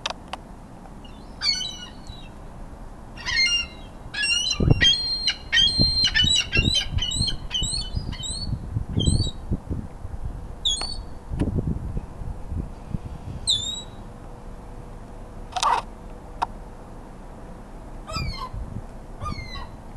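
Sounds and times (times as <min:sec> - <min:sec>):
gull squawking: 0:01.1 - 0:02.3, 0:03.2 - 0:08.4, 0:18.1 - 0:18.6, 0:19.2 - 0:19.8.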